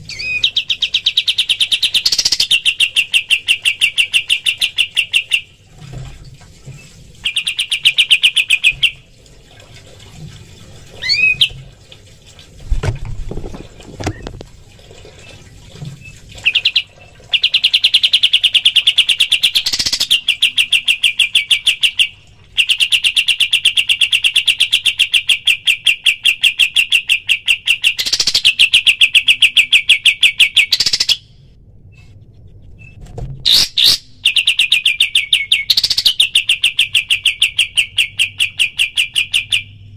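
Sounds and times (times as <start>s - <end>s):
bird singing rapid song: 0.1s - 5.4s.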